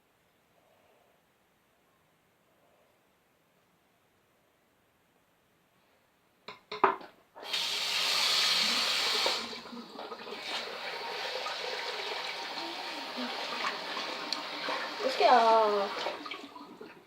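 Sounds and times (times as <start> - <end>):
tap running into a sink: 6.8 - 9.5.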